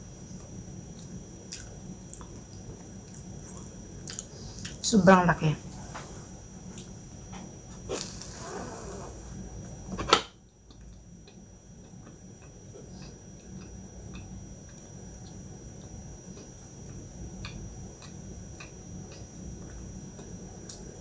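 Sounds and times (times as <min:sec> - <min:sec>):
teeth crunching pastry: 0:03.0 - 0:04.7.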